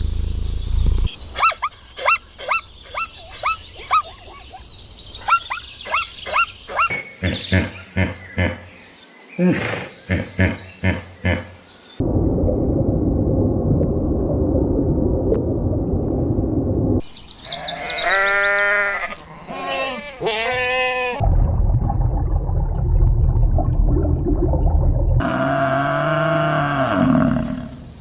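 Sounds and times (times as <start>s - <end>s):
low rumbling noise: 0.0s - 1.1s, 12.0s - 17.1s, 21.2s - 25.4s
bleating calls: 17.5s - 21.2s.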